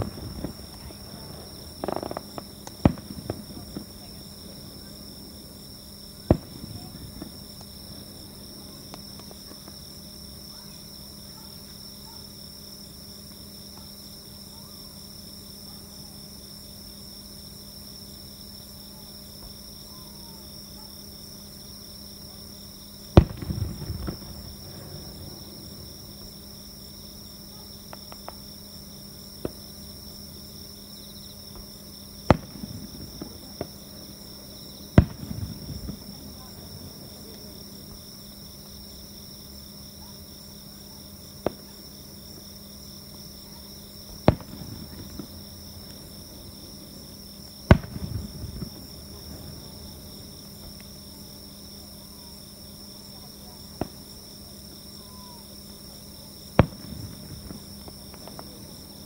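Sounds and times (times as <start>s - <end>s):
firework bangs: 0.0s - 9.9s, 23.0s - 26.8s, 31.5s - 38.1s, 43.6s - 50.8s, 56.4s - 59.0s
firework crackling: 0.0s - 10.4s, 23.0s - 30.8s, 31.5s - 38.9s, 43.2s - 51.4s, 55.1s - 59.0s
night insects chirping: 0.0s - 59.0s.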